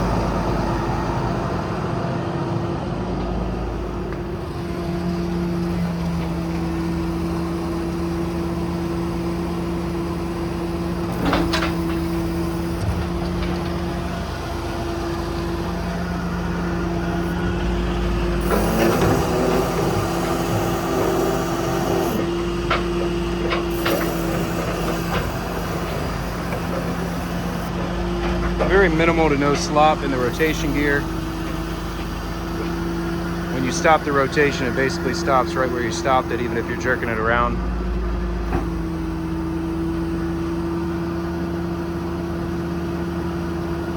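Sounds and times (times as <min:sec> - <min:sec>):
diesel truck engine running: 0:00.0 - 0:43.9
hydraulic hissing: 0:10.8 - 0:14.0, 0:14.6 - 0:37.7.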